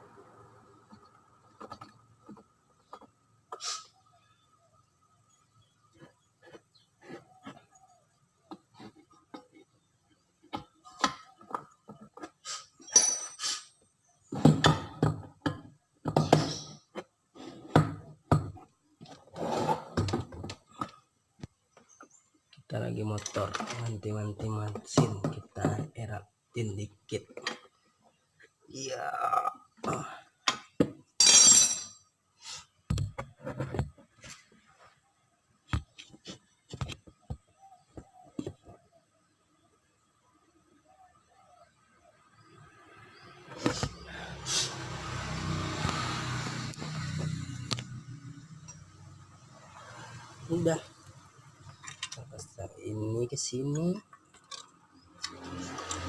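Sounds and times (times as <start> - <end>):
hissing scrape: 3.5 - 4.0, 43.6 - 45.1.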